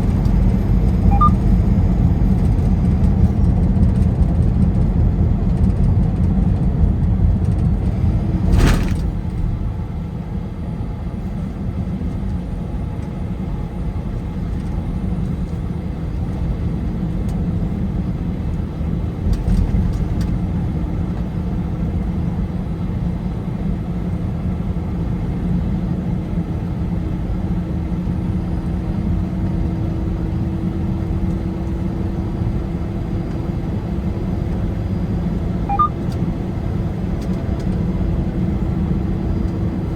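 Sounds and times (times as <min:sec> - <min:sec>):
tyre and engine rumble: 0:00.0 - 0:22.2.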